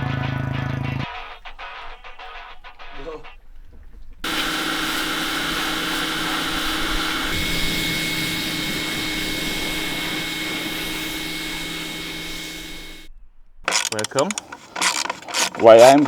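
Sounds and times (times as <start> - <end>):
hiss: 4.2 - 13.1
motor whine: 4.2 - 13.1, 13.7 - 16.0.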